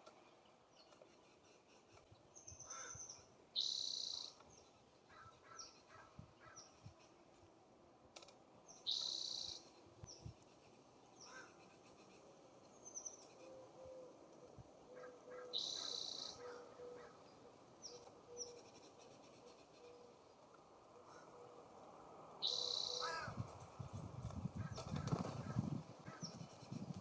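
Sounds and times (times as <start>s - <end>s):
small birds chirping: 0.0s - 7.5s, 8.7s - 13.5s, 14.5s - 21.3s, 22.4s - 27.0s
harsh raspy bird calls: 14.9s - 17.2s, 22.4s - 23.4s.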